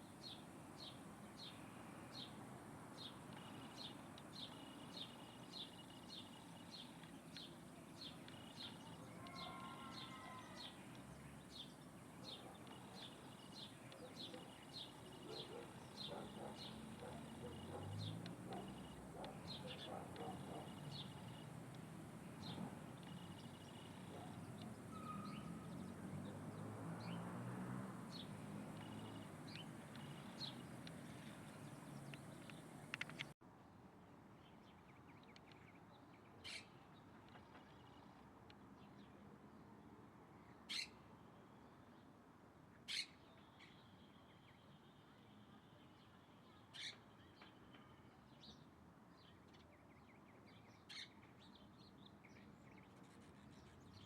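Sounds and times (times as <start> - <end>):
bird chirping: 3.0 - 27.4, 28.1 - 33.4
bird whistle: 24.9 - 25.5.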